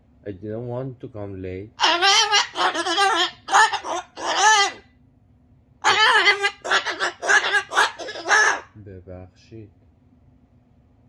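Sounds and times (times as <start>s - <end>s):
cockatoo squawking: 1.8s - 4.9s, 5.8s - 8.8s.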